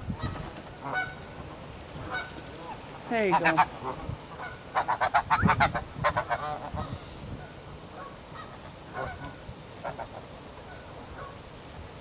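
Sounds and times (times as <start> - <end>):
geese honking: 0.2 - 7.3, 7.9 - 11.4.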